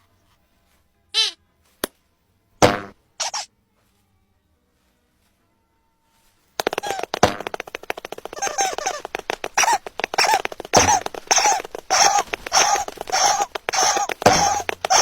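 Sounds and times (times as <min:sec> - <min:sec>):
cartoon raspy squawking chatter: 0:01.2 - 0:01.4, 0:03.2 - 0:03.5, 0:06.6 - 0:15.0.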